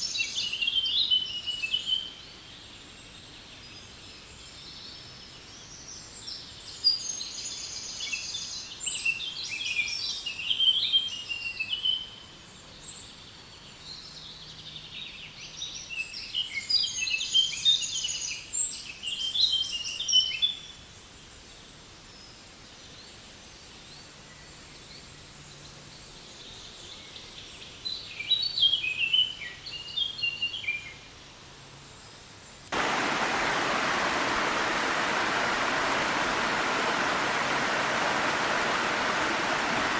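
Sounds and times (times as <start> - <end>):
faint steady background noise: 0.0 - 39.9
small waterfall rushing: 32.7 - 39.9
songbird twittering: 32.8 - 39.9.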